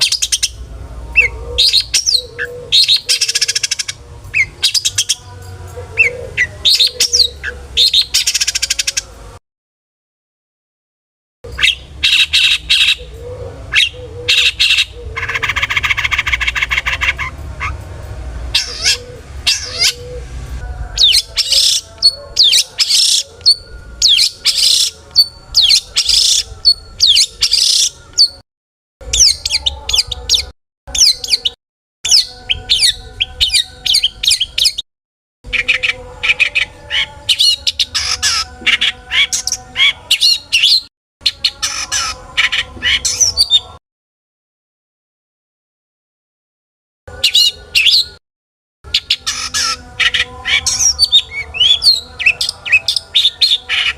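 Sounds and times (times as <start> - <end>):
shrike singing varied song: 0.0 - 9.2, 11.5 - 28.4, 29.0 - 34.8, 35.5 - 43.8, 48.9 - 53.9.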